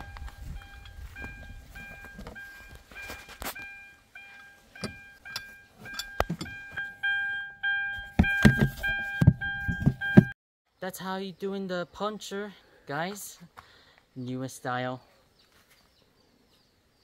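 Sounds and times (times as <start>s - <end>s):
electronic warning chime: 0.0s - 10.4s
handling clicks and knocks: 4.8s - 6.9s, 8.0s - 10.3s.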